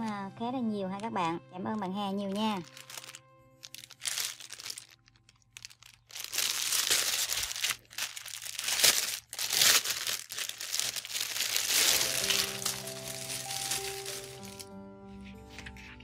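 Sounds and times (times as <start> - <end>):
plastic bag crinkling: 2.2 - 14.7.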